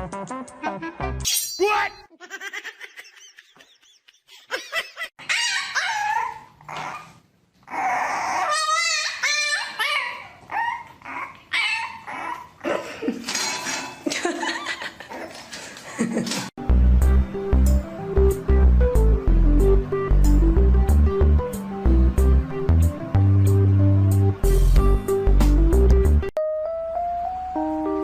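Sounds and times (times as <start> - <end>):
dog whining and yelping: 5.2 - 12.7.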